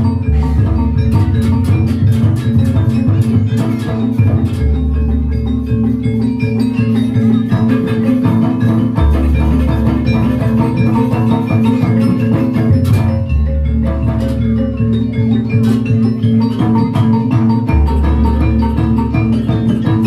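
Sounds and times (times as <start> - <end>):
deep low notes: 0.0 - 2.0
drums: 0.0 - 20.0
fast metallophone notes: 0.0 - 20.0.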